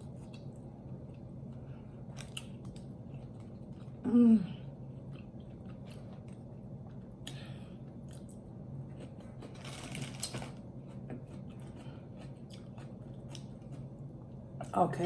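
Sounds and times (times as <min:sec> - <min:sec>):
person chewing wetly: 0:00.0 - 0:04.0, 0:04.8 - 0:07.4, 0:08.0 - 0:14.0
faint steady hum: 0:00.0 - 0:15.0
crunchy chewing: 0:08.0 - 0:14.1.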